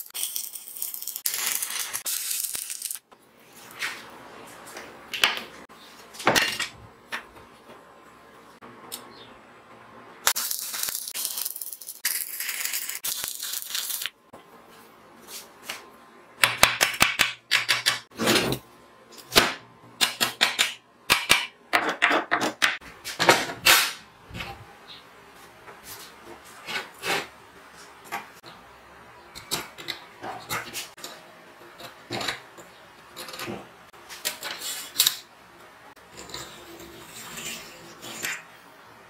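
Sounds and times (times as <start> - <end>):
welding arc crackling and hissing: 0.0 - 3.0, 10.3 - 14.2.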